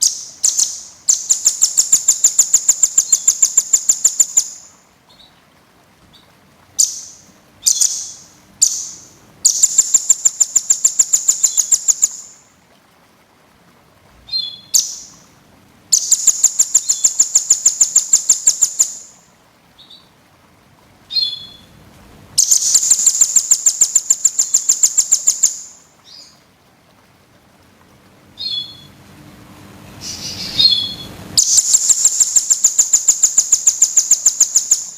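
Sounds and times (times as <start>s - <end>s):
songbird trilling: 0.0s - 5.3s, 6.8s - 12.4s, 14.3s - 15.2s, 15.9s - 19.2s, 21.1s - 21.7s, 22.4s - 26.4s, 28.4s - 28.9s, 30.0s - 34.9s
bird chirps: 0.0s - 5.4s, 6.1s - 12.4s, 14.3s - 15.2s, 15.9s - 19.2s, 21.1s - 21.7s, 22.4s - 26.4s, 28.4s - 28.9s, 30.0s - 34.9s.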